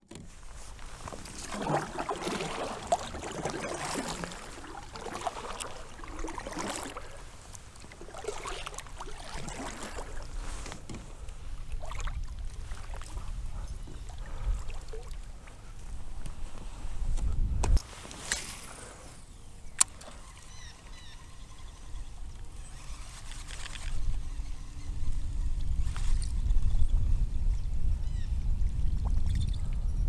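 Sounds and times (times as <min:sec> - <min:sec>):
kayak paddle splashes and drips: 0:00.8 - 0:10.5, 0:11.4 - 0:15.6.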